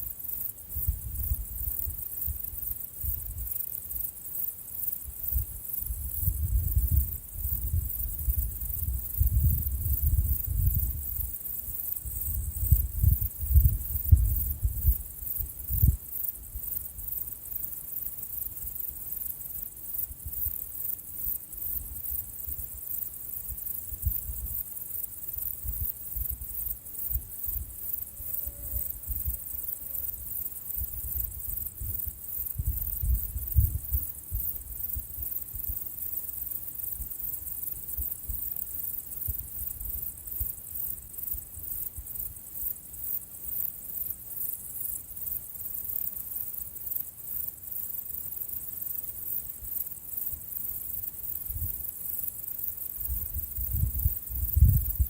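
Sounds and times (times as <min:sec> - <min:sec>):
insects chirring: 0:00.0 - 0:55.0
wind on microphone: 0:00.8 - 0:02.4, 0:05.3 - 0:11.4, 0:12.0 - 0:16.6, 0:30.8 - 0:35.6, 0:53.0 - 0:55.0.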